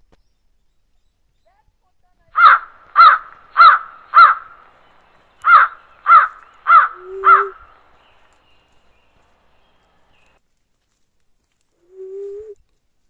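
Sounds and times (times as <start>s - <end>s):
bird harsh calls: 2.4s - 10.4s.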